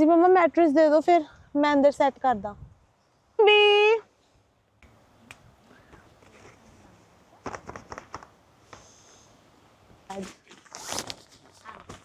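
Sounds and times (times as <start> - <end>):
rustling crackles: 5.9 - 9.0, 10.1 - 12.0.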